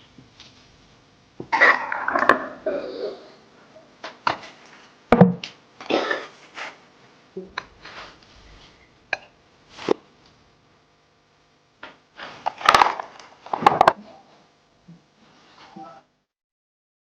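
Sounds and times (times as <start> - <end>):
sharp knocks: 5.1 - 5.4.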